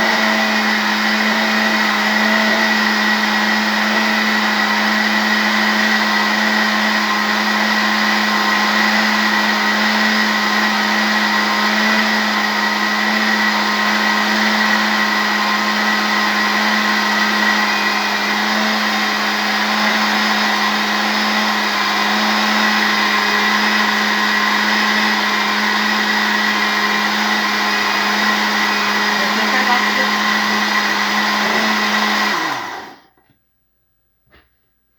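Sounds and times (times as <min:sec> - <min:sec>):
blender motor whining: 0:00.0 - 0:33.2.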